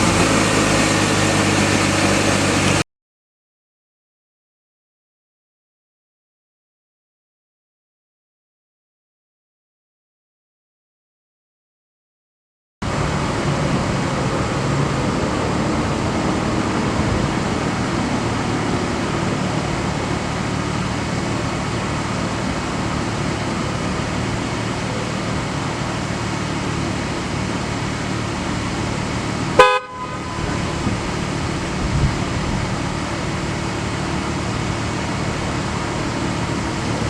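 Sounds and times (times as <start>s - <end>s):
car engine running: 0.0s - 2.8s, 12.8s - 37.0s
engine rev blip: 0.0s - 2.8s, 29.4s - 31.7s.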